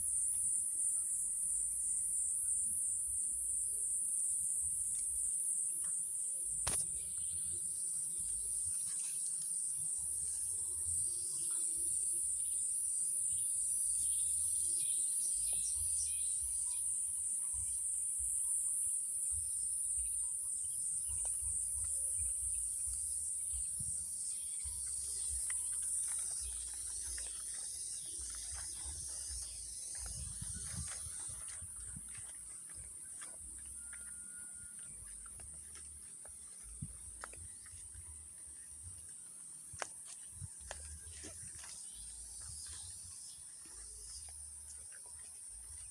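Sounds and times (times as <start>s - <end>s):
shrill insect chorus: 0.0s - 35.8s.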